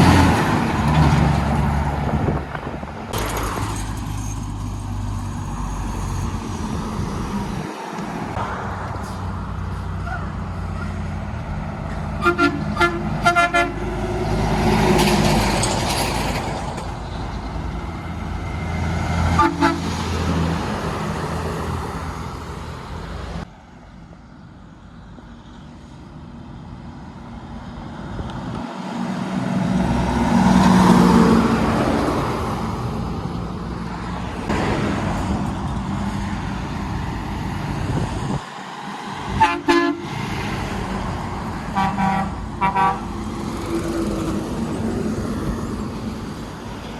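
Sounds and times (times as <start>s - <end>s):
trucks passing on road: 0.0s - 46.9s
truck horn toots: 12.2s - 14.0s, 19.3s - 20.1s, 39.3s - 40.2s, 41.6s - 43.2s.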